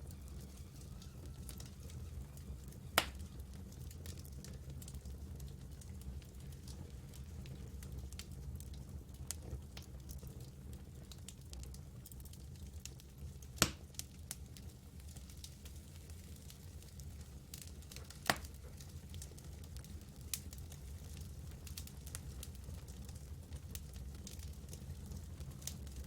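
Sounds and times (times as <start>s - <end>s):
campfire crackling: 0.0s - 26.0s
loud fire pops: 13.6s - 14.0s.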